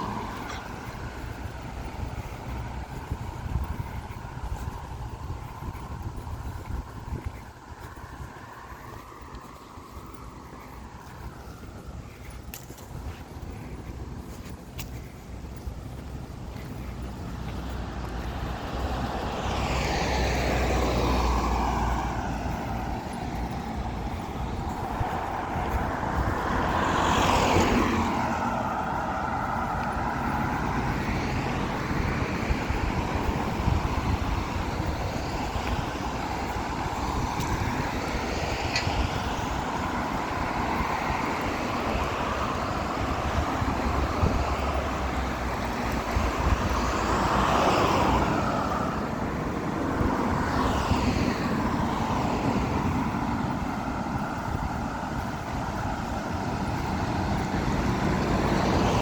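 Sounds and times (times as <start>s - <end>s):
cars driving past: 0.0s - 59.0s
steady traffic hum: 0.0s - 59.0s.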